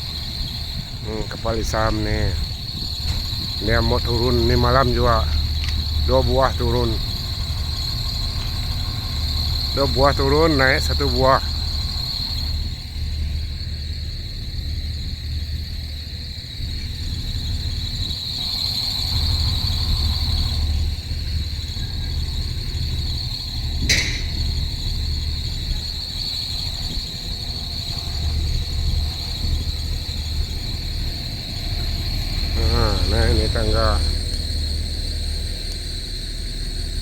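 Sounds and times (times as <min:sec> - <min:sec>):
low steady rumble: 0:00.0 - 0:37.0
night insects chirring: 0:00.0 - 0:37.0
sharp click: 0:23.8 - 0:24.6.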